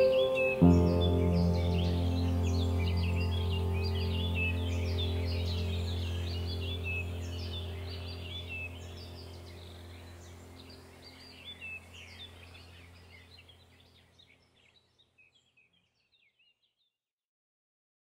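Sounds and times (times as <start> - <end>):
low steady hum: 0.0 - 14.0
small birds chirping: 0.0 - 16.9.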